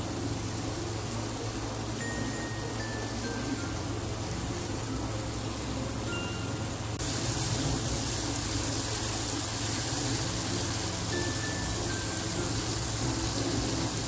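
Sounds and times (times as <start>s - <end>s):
paste sizzling in oil: 7.0s - 14.0s.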